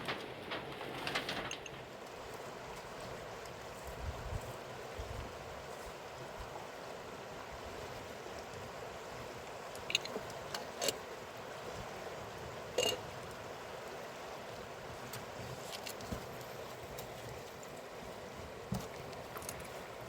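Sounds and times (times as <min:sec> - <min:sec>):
river water rushing: 0:04.6 - 0:20.0.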